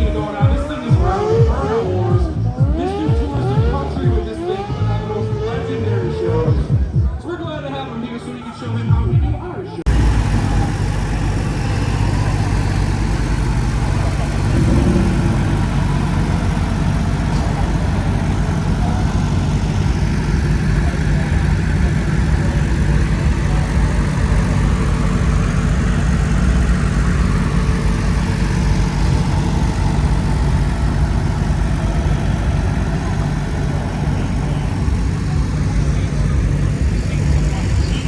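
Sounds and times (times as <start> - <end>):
truck engine idling: 0.0 - 7.9, 9.8 - 38.0.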